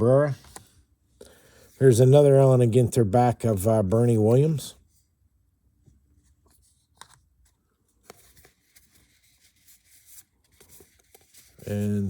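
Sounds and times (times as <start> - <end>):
cards rustling by hand: 0.2 - 0.9, 5.9 - 12.0.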